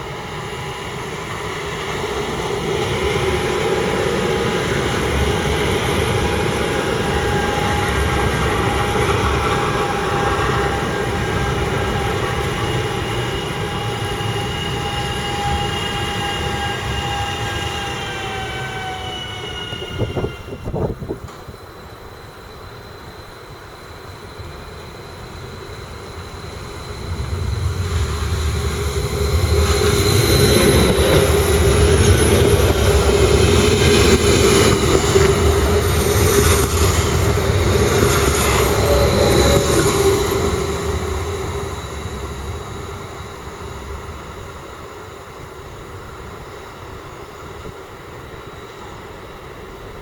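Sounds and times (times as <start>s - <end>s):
train passing on rails: 0.0s - 50.0s.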